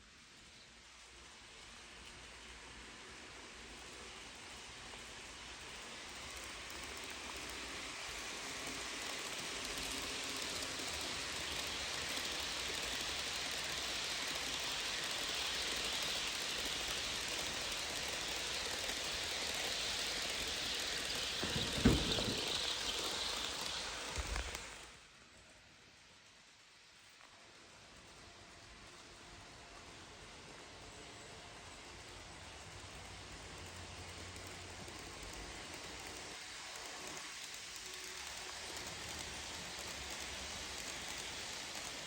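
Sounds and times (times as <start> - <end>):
train rolling past: 0.0 - 42.0
low thumps: 21.4 - 22.6.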